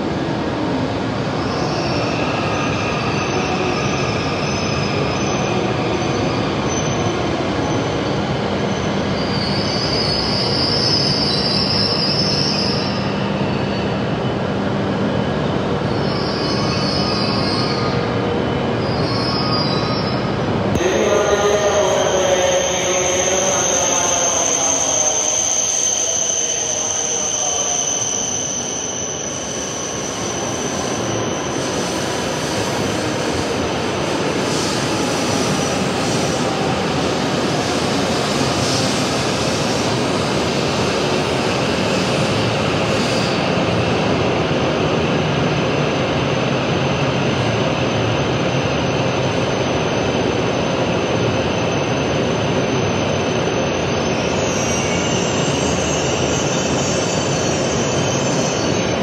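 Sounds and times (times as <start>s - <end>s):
train rumbling to a stop: 0.0s - 59.0s
steady high tone: 20.8s - 29.5s.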